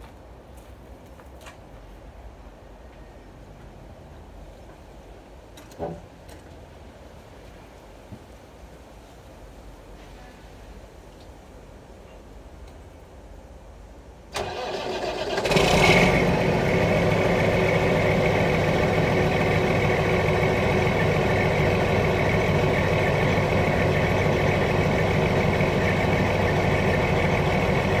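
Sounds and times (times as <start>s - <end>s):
diesel truck engine idling: 14.4s - 28.0s.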